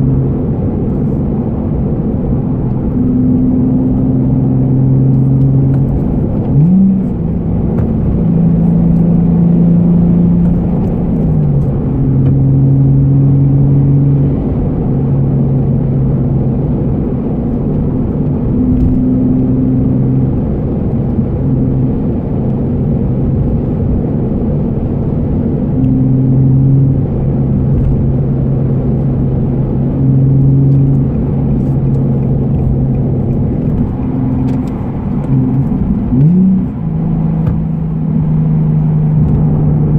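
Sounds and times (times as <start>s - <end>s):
car engine cruising from inside: 0.0s - 39.9s.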